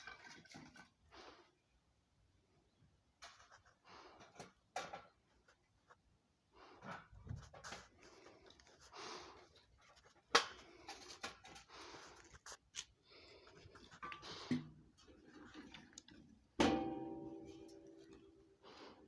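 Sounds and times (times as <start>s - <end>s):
ringing metal clang: 16.6s - 18.0s.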